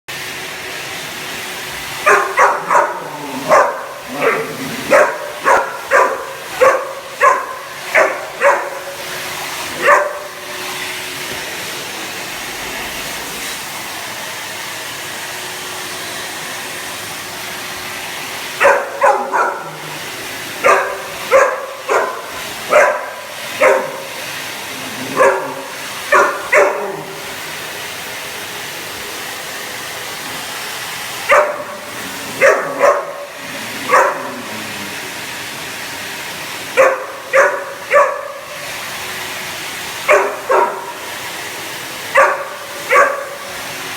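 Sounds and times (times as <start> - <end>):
vacuum cleaner drone: 0.1 - 43.9
dog barking: 2.0 - 10.6, 18.6 - 24.2, 24.8 - 27.3, 31.3 - 34.7, 36.7 - 38.6, 40.0 - 41.1, 42.1 - 43.6.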